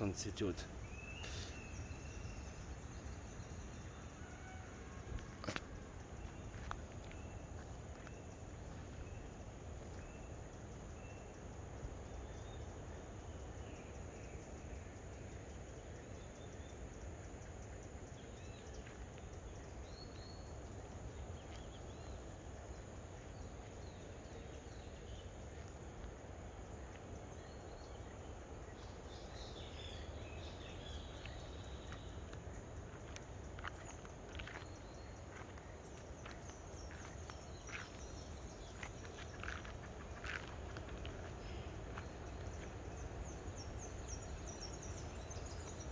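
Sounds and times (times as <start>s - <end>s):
high insect drone: 0.0s - 45.9s
short bird chirps: 0.8s - 5.5s
low background rumble: 23.4s - 45.9s.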